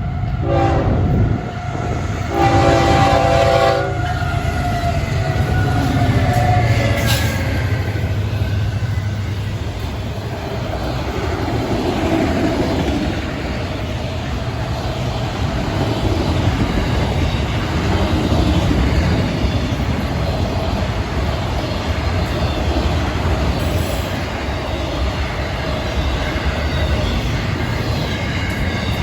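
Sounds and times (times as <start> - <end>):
freight train rumbling past: 0.0 - 29.0
train horn blast: 0.4 - 7.4.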